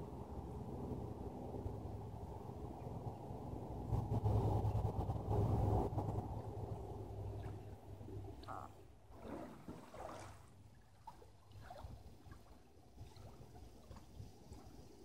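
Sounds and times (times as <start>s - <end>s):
water splashing around kayak: 5.2s - 15.0s
water trickling and dripping: 7.2s - 15.0s.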